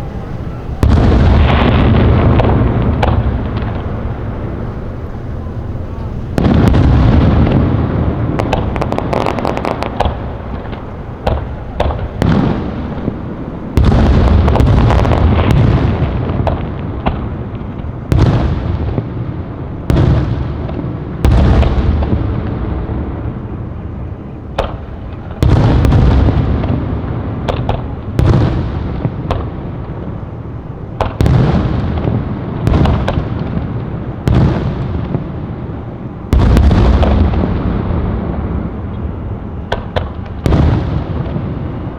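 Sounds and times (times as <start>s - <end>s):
fireworks booming: 0.0s - 41.9s
fireworks crackling: 0.0s - 41.9s.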